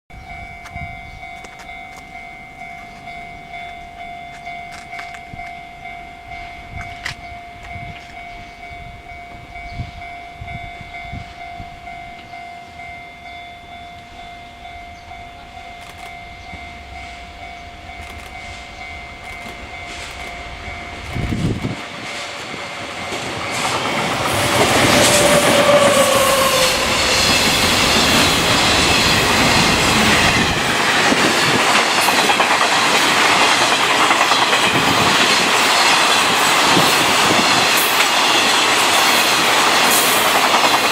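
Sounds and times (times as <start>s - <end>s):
freight train passing: 0.1s - 40.9s
wheels clicking over rail joints: 0.6s - 5.8s, 19.2s - 40.9s
train horn: 22.9s - 30.7s.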